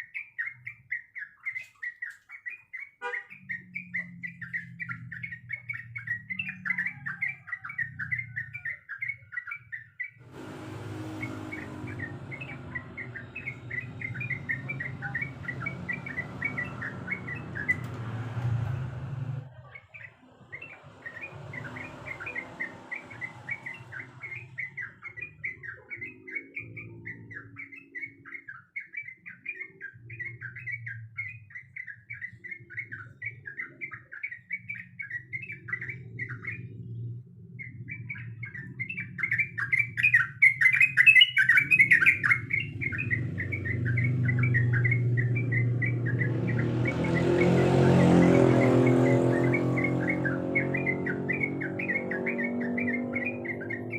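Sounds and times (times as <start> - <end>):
bird singing fast chatter: 0.0 - 53.9
low engine-like hum: 10.2 - 26.1, 41.6 - 53.9.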